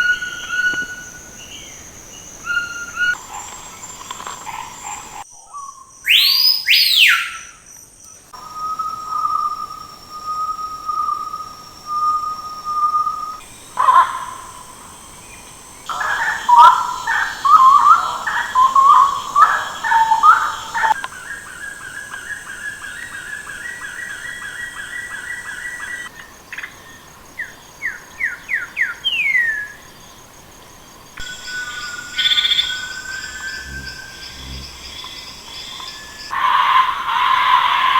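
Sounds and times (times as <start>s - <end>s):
rapid repeated bird notes: 0.0s - 5.2s, 13.6s - 21.4s
bird chirping: 0.0s - 7.6s, 8.4s - 26.1s, 31.2s - 36.4s
downward-swept bird whistles: 5.4s - 7.6s, 8.4s - 13.4s.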